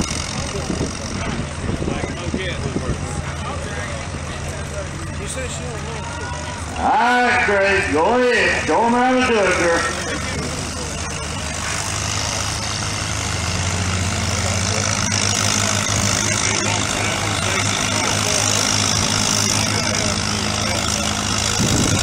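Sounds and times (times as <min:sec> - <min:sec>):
tractor engine running under load: 0:00.0 - 0:22.0.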